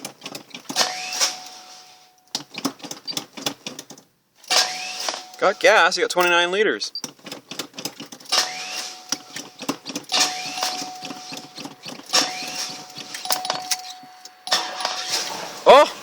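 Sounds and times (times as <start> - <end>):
starter cranking engine: 4.5 - 15.5
high warning chime tone: 4.8 - 6.7, 8.7 - 15.4.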